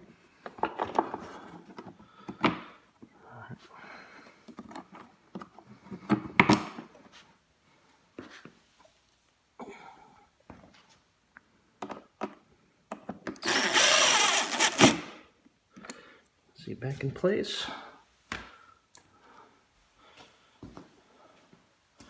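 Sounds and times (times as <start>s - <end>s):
loud harsh noise: 13.4s - 15.1s.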